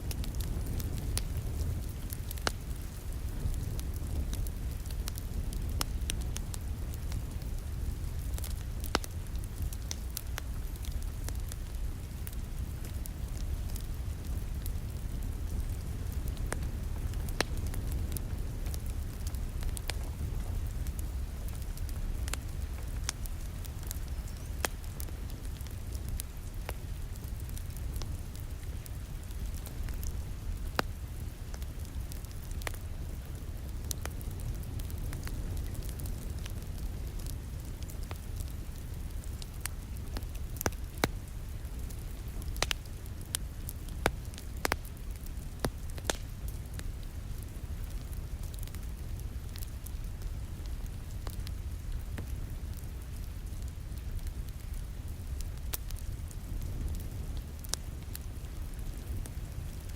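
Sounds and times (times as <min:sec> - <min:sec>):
steady low rumble: 0:00.0 - 0:43.4
rain pattering: 0:00.0 - 0:59.9
wood fire crackling and popping: 0:00.0 - 0:59.9.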